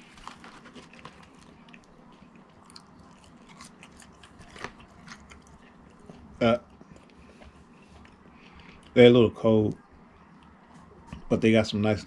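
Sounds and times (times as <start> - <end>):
person biting and chewing food: 0.0 - 9.0.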